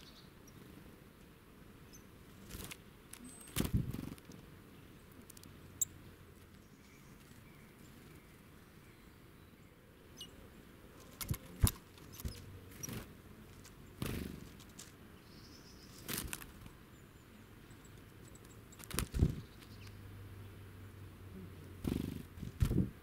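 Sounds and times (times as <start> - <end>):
birds tapping on a log: 11.0 - 15.0, 17.7 - 20.0.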